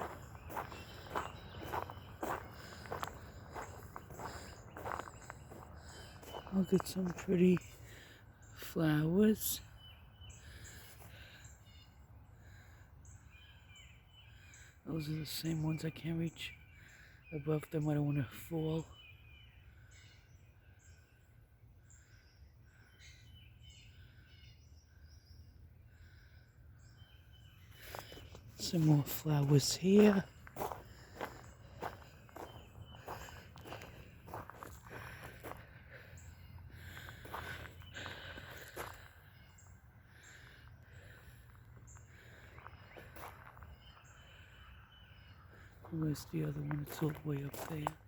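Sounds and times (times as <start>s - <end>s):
footsteps on gravel: 0.0s - 8.0s, 27.8s - 39.7s, 41.0s - 44.5s, 45.2s - 48.0s
birds chirping and whistling: 0.0s - 48.0s.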